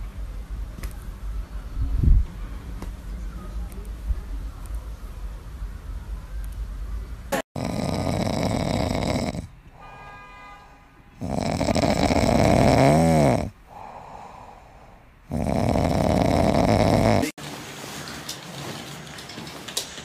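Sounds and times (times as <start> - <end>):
kitten snoring: 7.6 - 9.5, 11.2 - 14.3, 15.3 - 17.4
kitten breathing: 13.6 - 15.7.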